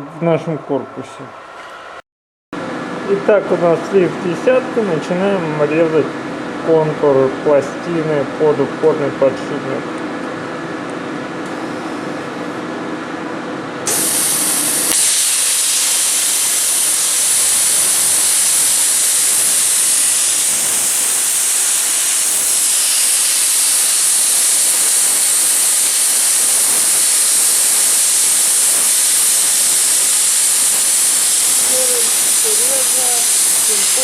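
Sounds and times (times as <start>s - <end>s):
plasma cutter hissing: 13.9s - 34.0s.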